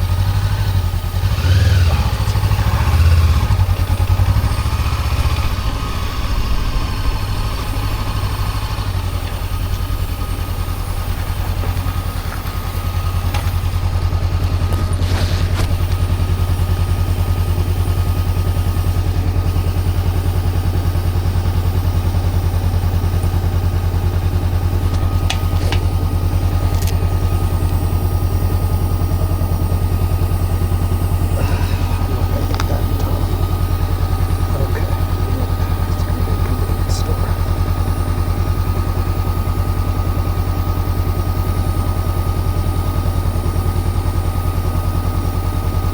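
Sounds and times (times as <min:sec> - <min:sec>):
motorcycle engine idling: 0:00.0 - 0:45.9.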